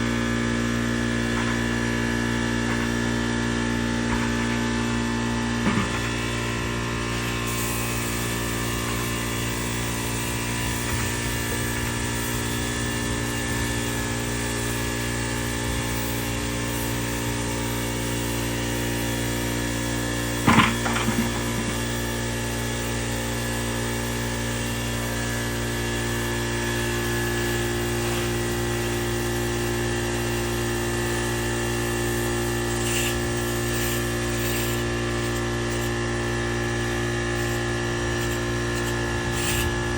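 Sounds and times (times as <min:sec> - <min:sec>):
small motor humming: 0:00.0 - 0:39.9
short clatter: 0:20.5 - 0:21.9.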